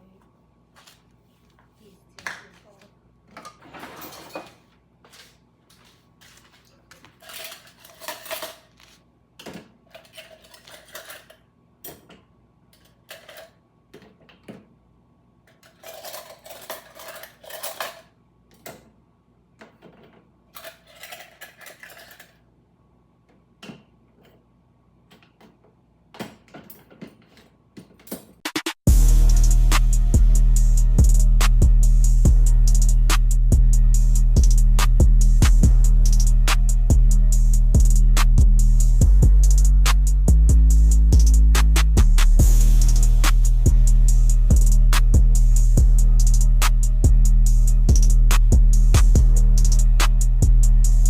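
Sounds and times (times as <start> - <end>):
dishes and cutlery clinking: 3.4 - 4.7, 6.2 - 9.0, 15.5 - 18.1, 19.7 - 22.4.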